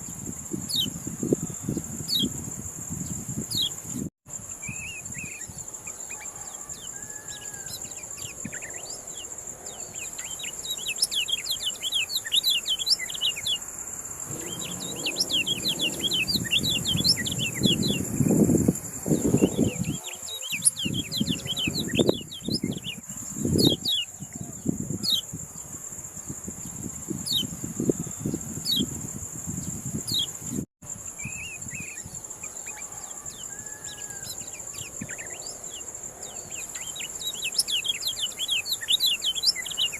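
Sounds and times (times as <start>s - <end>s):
songbird chirping: 4.5s - 25.3s, 31.2s - 39.9s
low rumbling bursts: 14.2s - 19.6s
high-pitched whine: 14.3s - 19.8s.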